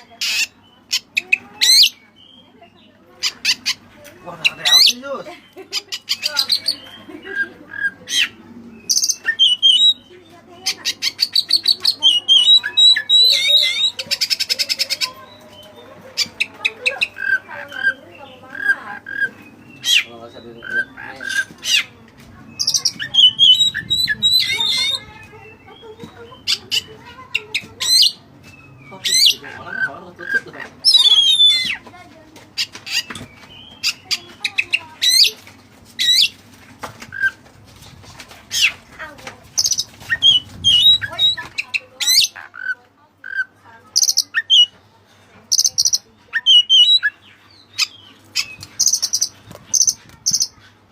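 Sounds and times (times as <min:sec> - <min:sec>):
magpie-robin singing: 0:00.0 - 0:36.4, 0:38.5 - 0:44.8, 0:45.5 - 0:50.7.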